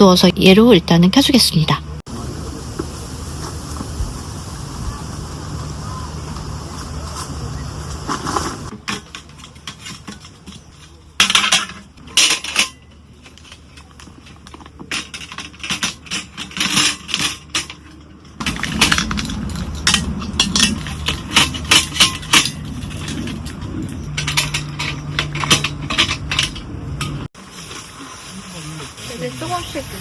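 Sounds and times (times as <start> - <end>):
low steady rumble: 18.2 - 27.3.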